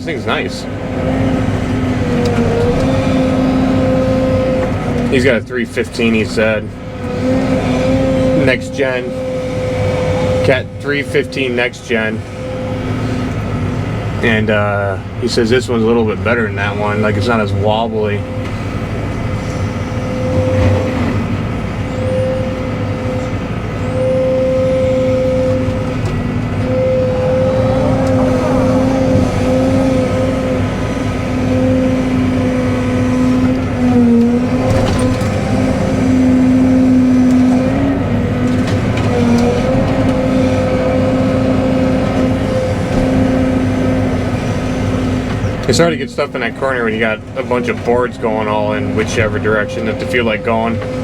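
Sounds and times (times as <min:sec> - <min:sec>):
excavator diesel engine running: 0:00.0 - 0:51.0
hydraulic whine: 0:00.0 - 0:51.0.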